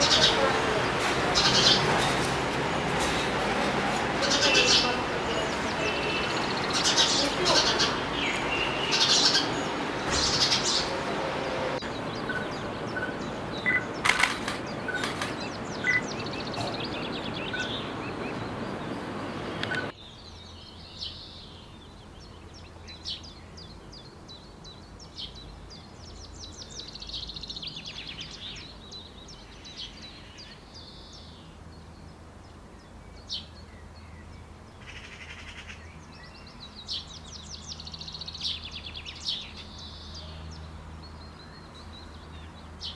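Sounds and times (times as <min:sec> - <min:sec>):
loud steady rushing noise: 0:00.0 - 0:20.0
birds chirping and singing: 0:00.0 - 0:42.9.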